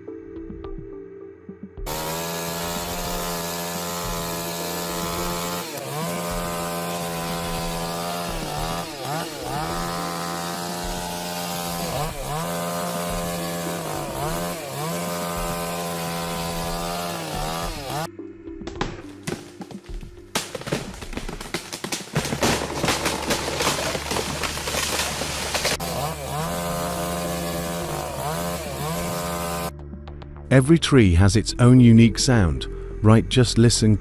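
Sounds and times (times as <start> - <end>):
chainsaw running: 1.9 - 18.1, 18.8 - 29.7
sharp cracks: 18.8 - 26.0.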